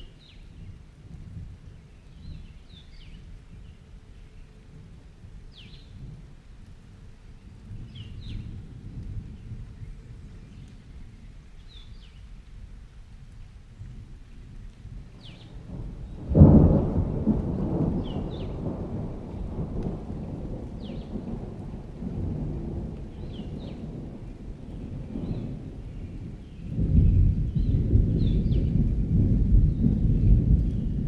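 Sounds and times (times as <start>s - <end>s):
steady rain: 0.0s - 31.0s
thunder rumbling: 14.6s - 31.0s
loud thunderclap: 15.2s - 31.0s.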